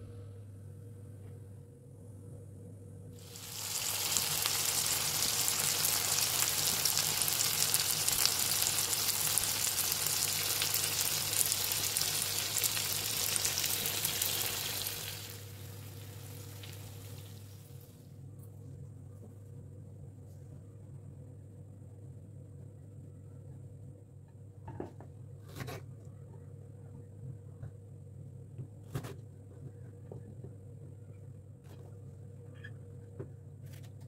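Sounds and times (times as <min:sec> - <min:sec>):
food sizzling in hot oil: 0:03.2 - 0:17.8.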